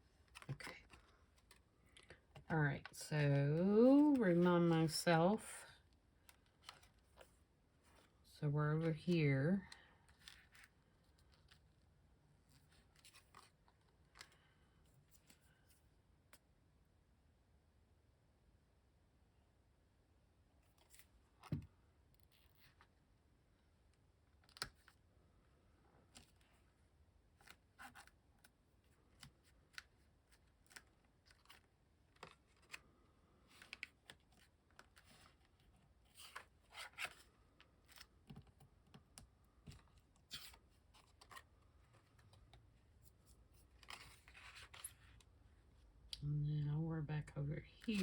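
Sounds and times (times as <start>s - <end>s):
paper rustling and scraping: 43.0s - 45.2s.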